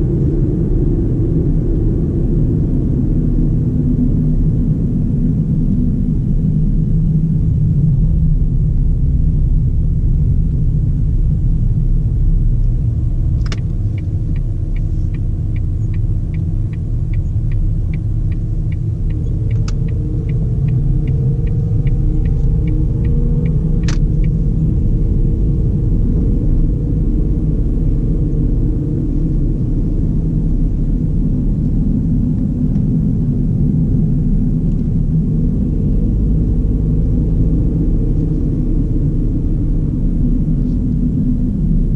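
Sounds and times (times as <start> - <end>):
car road and engine rumble: 0.0 - 41.9
turn indicator ticking: 13.3 - 24.4.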